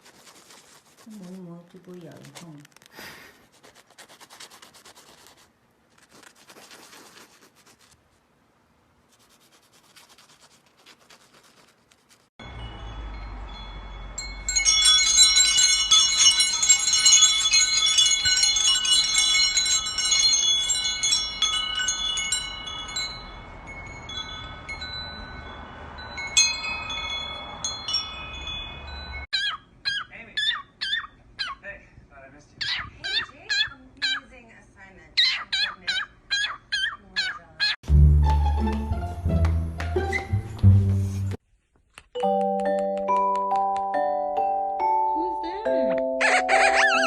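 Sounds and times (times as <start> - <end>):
faint scratching: 0.0 - 8.2, 9.1 - 12.3
metal chimes ringing: 12.4 - 29.3.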